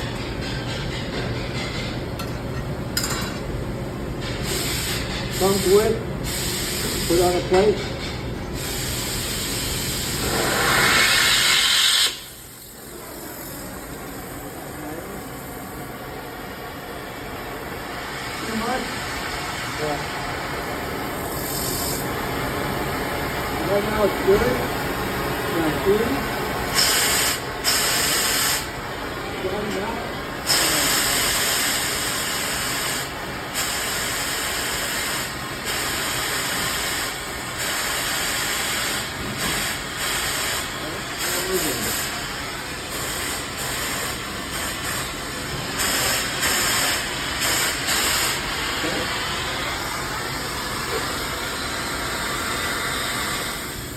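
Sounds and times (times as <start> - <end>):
cutting torch hissing: 8.7 - 15.8, 26.7 - 28.7, 30.5 - 42.3.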